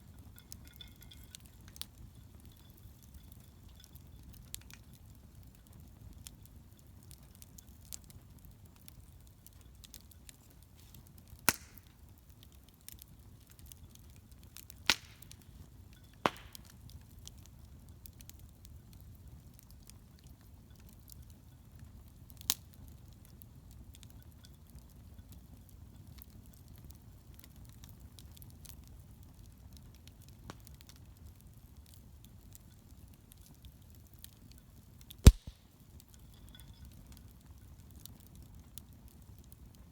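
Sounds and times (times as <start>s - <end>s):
bonfire crackling: 0.0s - 39.9s
sharp loud pops: 35.3s - 35.6s.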